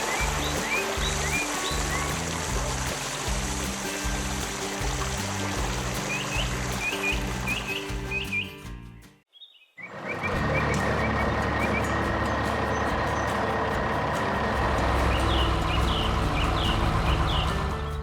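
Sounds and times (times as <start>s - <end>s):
birds chirping: 0.0s - 18.0s
heavy truck engine running: 10.0s - 18.0s.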